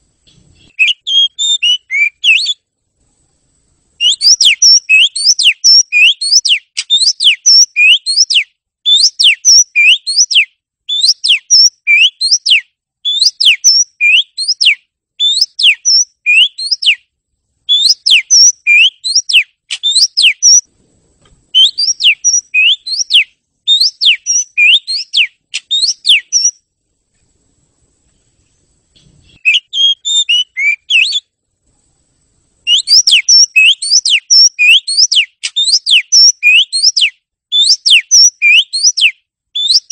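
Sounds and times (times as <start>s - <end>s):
scratchy bird call: 0.3s - 2.6s, 17.7s - 20.7s, 21.5s - 26.5s, 29.0s - 31.2s
magpie-robin whistled song: 0.3s - 2.7s, 4.0s - 17.1s, 17.7s - 20.7s, 21.5s - 26.6s, 29.0s - 31.3s, 32.6s - 39.9s.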